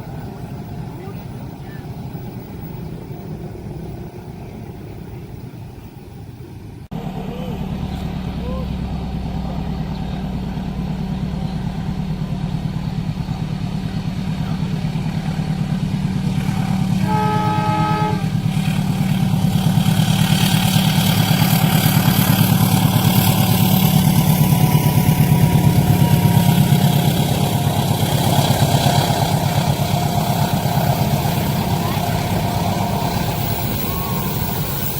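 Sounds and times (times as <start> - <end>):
diesel train engine throb: 0.0 - 34.9
train wheel noise: 0.0 - 34.9
train horn blast: 16.3 - 19.3, 23.8 - 34.9.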